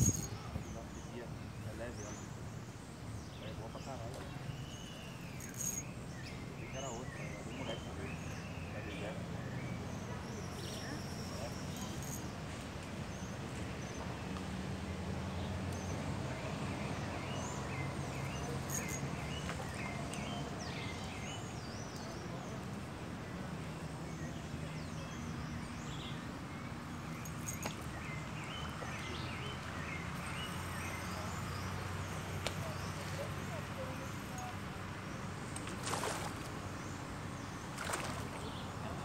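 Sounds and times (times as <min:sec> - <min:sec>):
bird chirping: 0:03.2 - 0:12.3.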